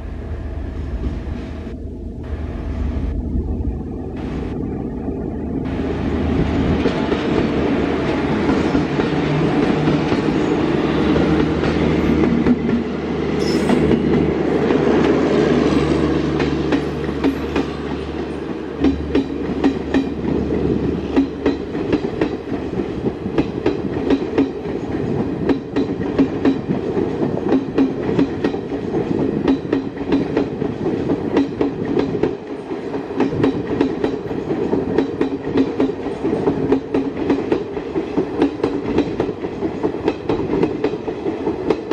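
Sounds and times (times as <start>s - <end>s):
electric locomotive humming: 0.0s - 41.9s
train wheels noise: 5.7s - 41.9s
train clattering over rail joints: 15.9s - 41.9s.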